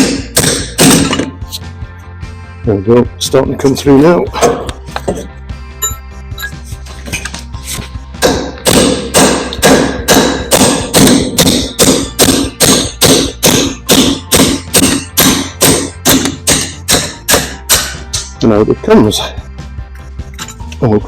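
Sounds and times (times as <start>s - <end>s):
hammer striking metal: 0.0s - 1.4s, 8.2s - 18.4s.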